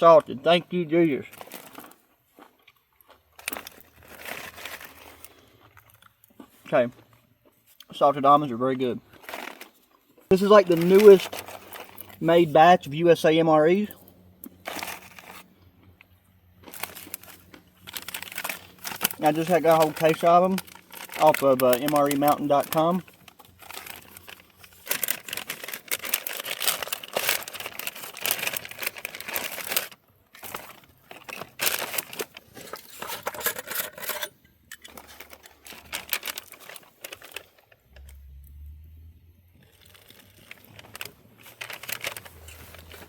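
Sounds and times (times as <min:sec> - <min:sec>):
plastic packaging crinkling: 0:01.3 - 0:02.0, 0:03.0 - 0:05.6, 0:09.1 - 0:12.7, 0:13.7 - 0:15.6, 0:16.6 - 0:38.5, 0:39.5 - 0:43.0.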